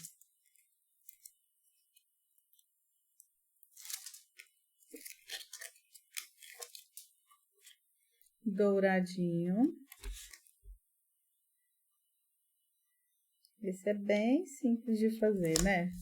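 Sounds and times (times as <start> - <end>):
paper rustling and tapping: 9.9 - 10.8, 15.4 - 16.0.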